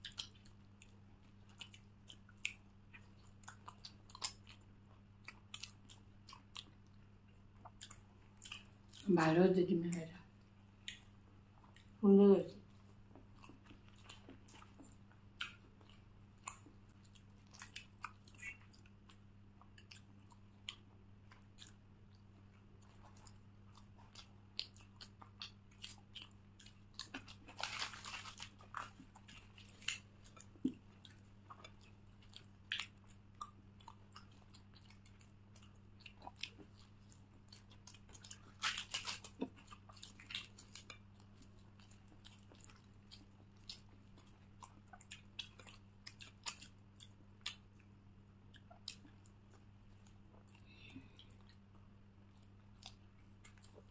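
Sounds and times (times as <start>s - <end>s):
person chewing food: 0.0s - 9.1s, 10.2s - 12.0s, 12.6s - 53.9s
soft mouth clicks: 17.6s - 18.9s.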